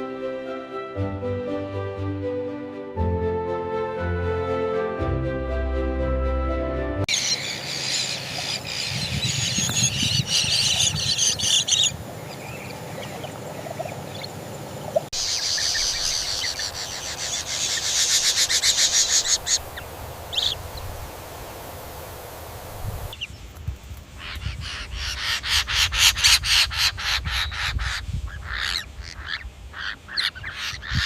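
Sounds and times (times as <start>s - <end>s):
birds chirping: 7.1s - 23.5s, 24.2s - 31.0s.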